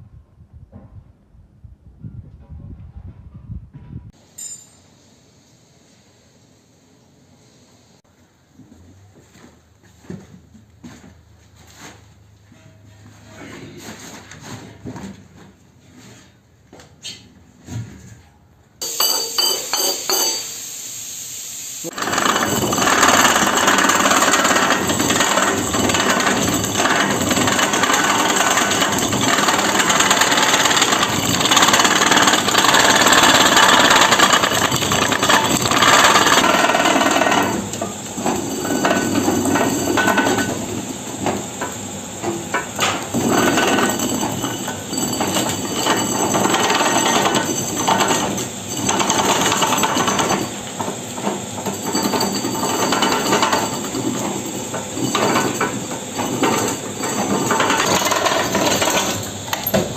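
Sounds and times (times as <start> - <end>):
workshop tool rapid clatter: 21.8 - 59.9.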